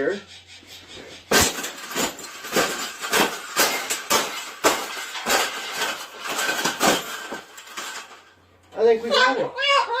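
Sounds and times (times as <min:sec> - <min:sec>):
cage crunching and rattling: 0:01.1 - 0:09.0.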